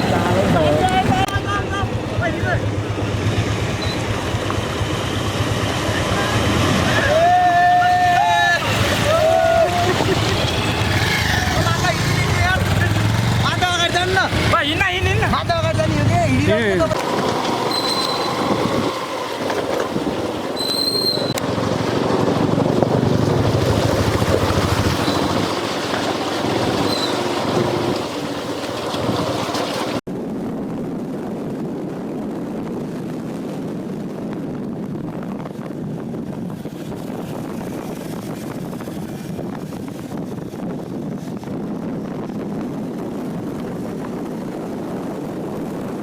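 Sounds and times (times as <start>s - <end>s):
motorcycle road noise: 0.0s - 46.0s
wind buffeting microphone: 0.0s - 46.0s
short high beeps: 3.8s - 4.1s.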